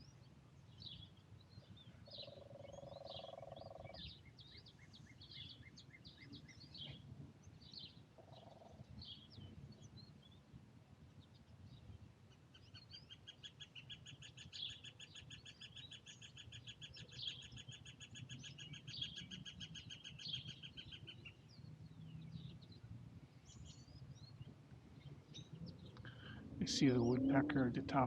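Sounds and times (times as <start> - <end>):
bird chirps: 0.8 - 7.0, 12.6 - 22.8.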